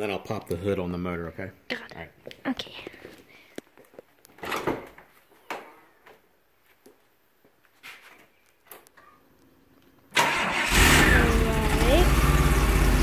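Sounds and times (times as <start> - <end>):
car engine starting and running: 10.2 - 13.0.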